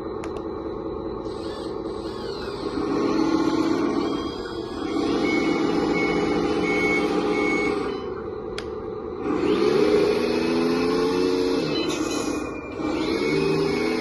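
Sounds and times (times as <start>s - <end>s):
simulated diesel engine: 0.0s - 14.0s
reversing beeps: 3.2s - 8.2s, 11.6s - 14.0s.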